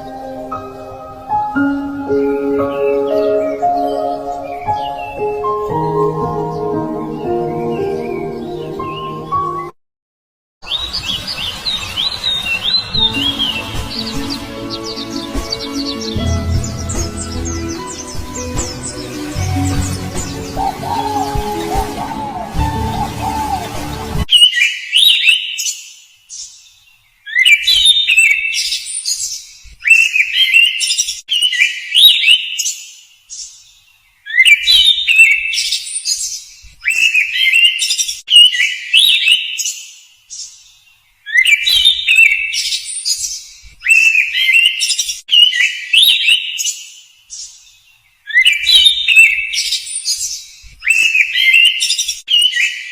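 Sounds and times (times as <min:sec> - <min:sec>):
songbird whistling gliding phrases: 0:10.6 - 0:25.6, 0:43.8 - 0:46.6, 0:48.3 - 0:52.9.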